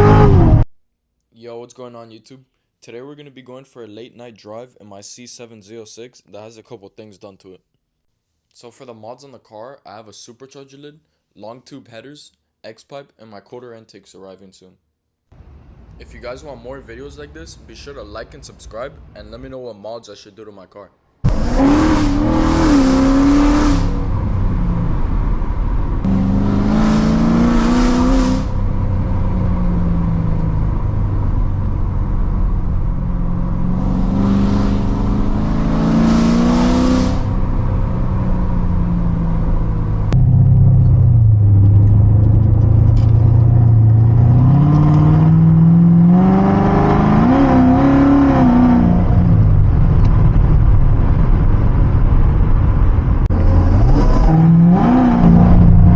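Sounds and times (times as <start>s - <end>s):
car engine revving: 0.0s - 0.6s, 21.3s - 51.1s, 53.2s - 55.9s
low exhaust drone: 21.3s - 46.3s, 47.9s - 55.9s.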